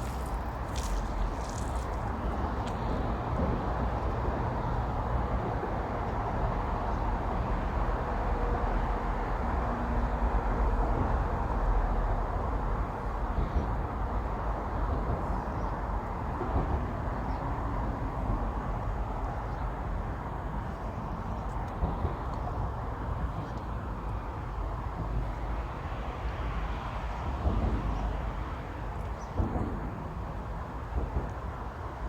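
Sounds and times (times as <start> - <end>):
road traffic rumble: 0.0 - 7.0.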